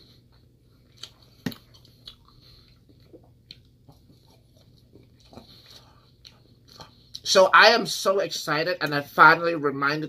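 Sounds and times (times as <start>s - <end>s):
person chewing: 0.0s - 7.3s.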